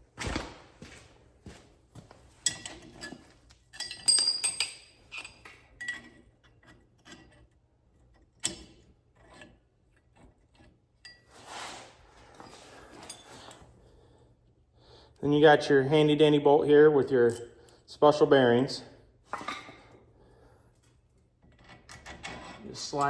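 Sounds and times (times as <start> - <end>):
small metal hardware clinking: 2.4 - 7.4, 12.8 - 13.6.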